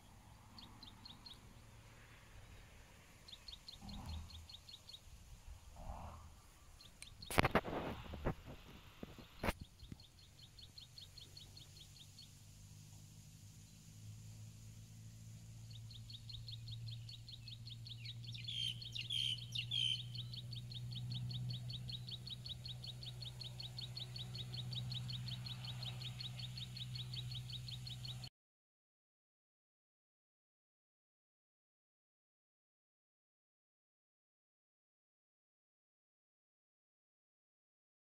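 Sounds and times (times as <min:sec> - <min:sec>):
rapid repeated bird chirp: 0:00.0 - 0:07.6, 0:09.1 - 0:14.0, 0:14.6 - 0:28.3
loud bird chirps: 0:15.7 - 0:28.3.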